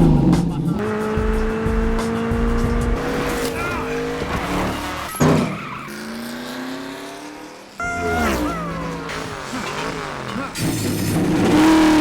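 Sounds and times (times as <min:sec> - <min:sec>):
engine rev: 0:00.0 - 0:12.0
race car engine running: 0:00.0 - 0:12.0
tyre squeal: 0:03.3 - 0:06.2.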